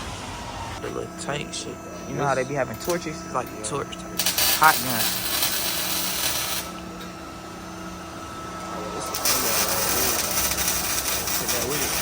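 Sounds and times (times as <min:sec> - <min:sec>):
gas torch hissing and crackling: 0:00.0 - 0:07.7, 0:08.5 - 0:12.0.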